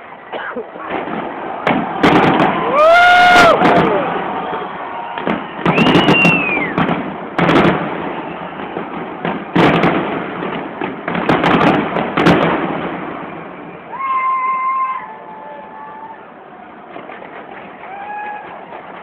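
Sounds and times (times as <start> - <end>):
fireworks bangs: 0.6 - 15.9, 16.6 - 19.0
firework whistle: 1.7 - 10.0, 12.2 - 16.2.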